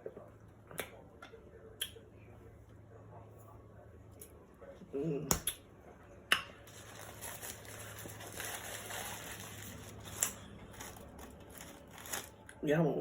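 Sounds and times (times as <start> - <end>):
rustling food wrapper: 6.7 - 12.6.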